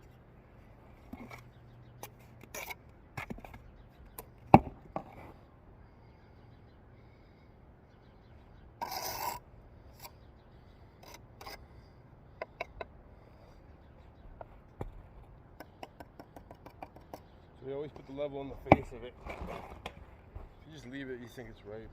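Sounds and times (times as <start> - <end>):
trowel scraping mortar: 2.0 - 3.4, 8.8 - 9.4
bricks tapping and clicking: 12.4 - 12.9, 14.4 - 20.6.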